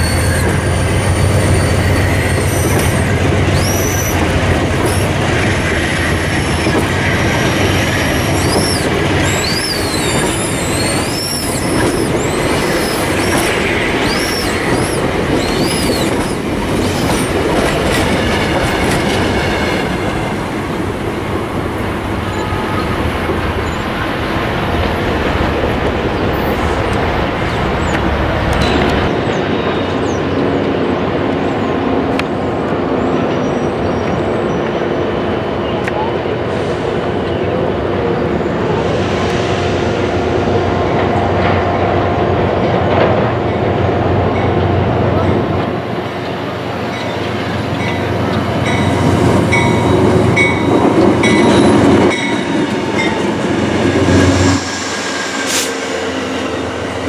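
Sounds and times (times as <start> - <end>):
train wheels rumbling on rails: 0.0 - 57.0
high squealing tones: 7.8 - 19.8.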